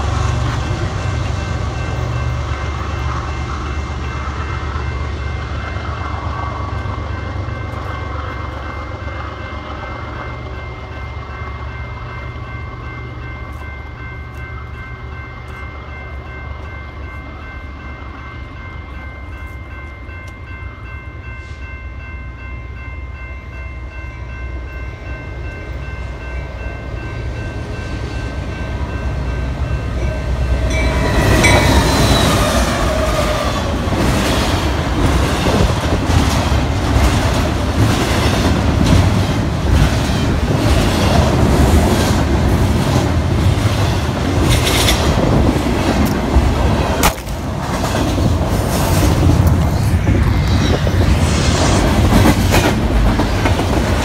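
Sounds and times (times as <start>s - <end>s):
crossing bell ringing: 0.0s - 34.0s
freight train rumble: 0.0s - 54.0s
train wheels clattering over rail joints: 33.9s - 49.0s.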